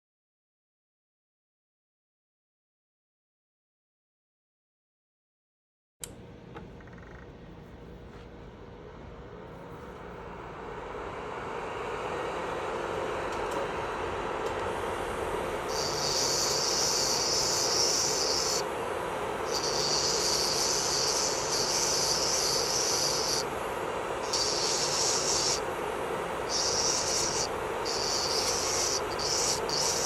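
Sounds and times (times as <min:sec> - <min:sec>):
electric nail drill whining: 0:14.7 - 0:30.0.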